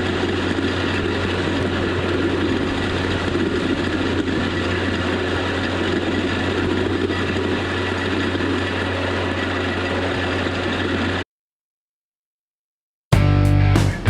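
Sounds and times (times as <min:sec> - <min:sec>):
tractor engine humming: 0:00.0 - 0:11.2.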